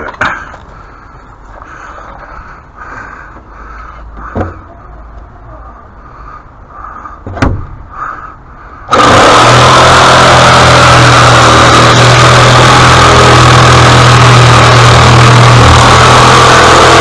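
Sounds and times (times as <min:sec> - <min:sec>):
power equipment motor running: 0:08.9 - 0:17.0.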